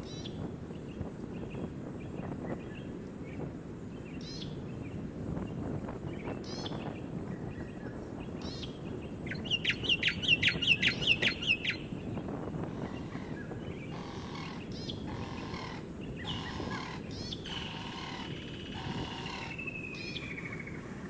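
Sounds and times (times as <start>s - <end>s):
faint bird chirps: 6.2s - 11.9s, 12.8s - 21.0s.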